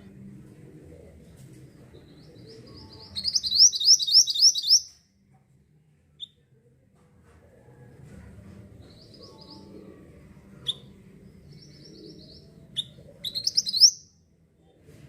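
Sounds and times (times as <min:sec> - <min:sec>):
bird singing high notes: 0:03.0 - 0:04.9.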